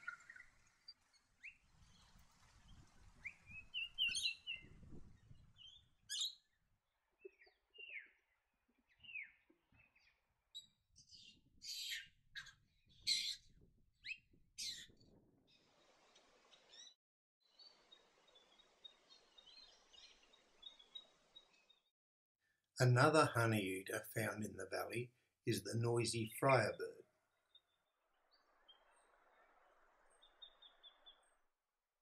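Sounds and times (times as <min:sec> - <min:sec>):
birds calling sharply: 0:03.2 - 0:04.8, 0:05.5 - 0:06.4, 0:11.1 - 0:14.9.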